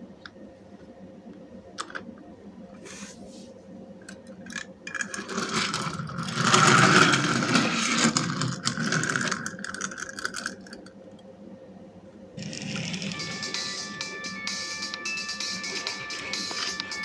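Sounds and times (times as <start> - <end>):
toy vehicle rolling and rattling: 4.6 - 10.9, 12.4 - 14.2, 15.4 - 17.0.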